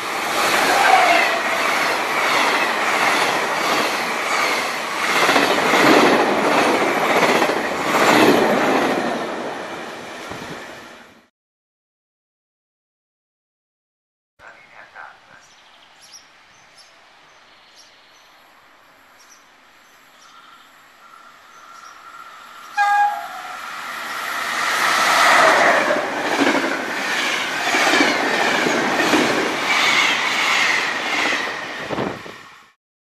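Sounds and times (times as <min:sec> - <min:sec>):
train roaring past on rails: 0:00.0 - 0:11.3, 0:17.8 - 0:32.8
wheels clacking over rail joints: 0:01.5 - 0:09.4
train horn blast: 0:22.7 - 0:23.7.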